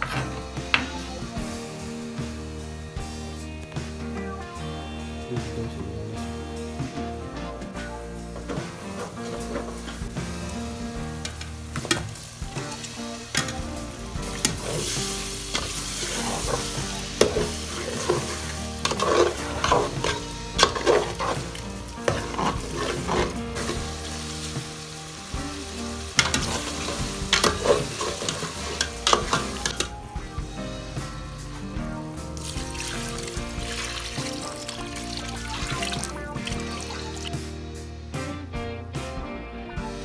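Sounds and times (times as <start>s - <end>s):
chicken sizzling in a pot: 8.4s - 31.7s, 32.3s - 37.6s
metal spatula scraping a pot: 12.8s - 24.5s, 26.0s - 29.9s.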